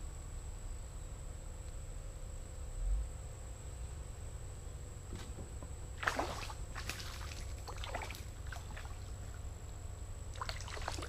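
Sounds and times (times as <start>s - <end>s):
water splashing against kayak: 6.0s - 9.4s, 10.3s - 11.0s.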